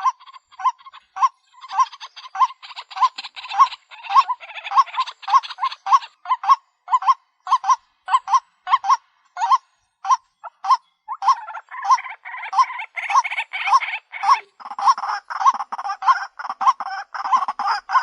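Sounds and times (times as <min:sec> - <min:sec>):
waterhen calling hoarse notes: 0:00.0 - 0:18.0.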